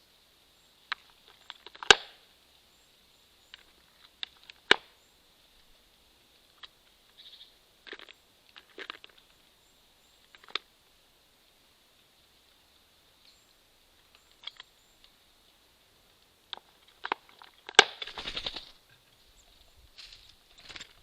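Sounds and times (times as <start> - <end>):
birds tapping on wooden feeder: 16.6 - 18.7.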